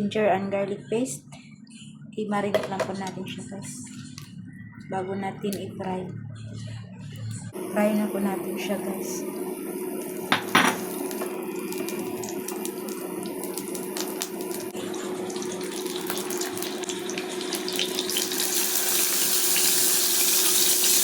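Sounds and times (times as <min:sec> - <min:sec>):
low hum: 0:02.7 - 0:13.6
fish sizzling in hot oil: 0:09.9 - 0:21.0.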